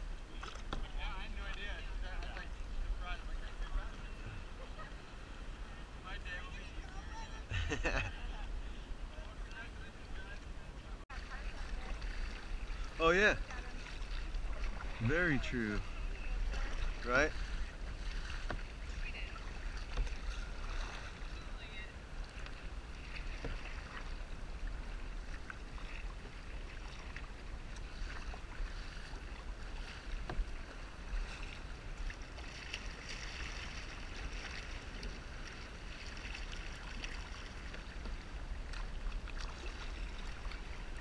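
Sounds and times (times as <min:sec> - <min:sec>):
water splashing around a kayak: 0:00.0 - 0:41.0
small knocks and drips: 0:18.3 - 0:18.7, 0:19.8 - 0:20.3, 0:30.2 - 0:30.8.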